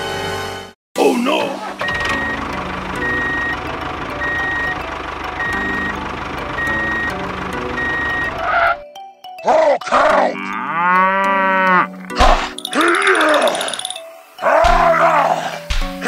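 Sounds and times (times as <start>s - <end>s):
reversing alarm beeping: 1.8s - 4.8s, 5.4s - 8.5s
truck engine running: 1.8s - 8.7s.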